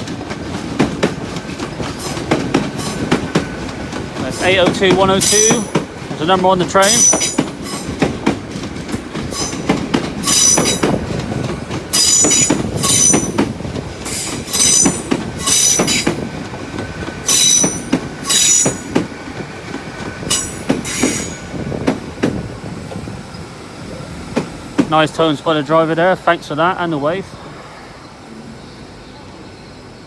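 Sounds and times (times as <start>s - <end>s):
train rolling rumble: 0.0s - 30.0s
train wheels squealing: 5.2s - 5.8s, 6.8s - 8.0s, 9.3s - 11.0s, 11.9s - 13.5s, 14.1s - 16.2s, 17.3s - 19.1s, 20.3s - 21.6s, 27.4s - 30.0s.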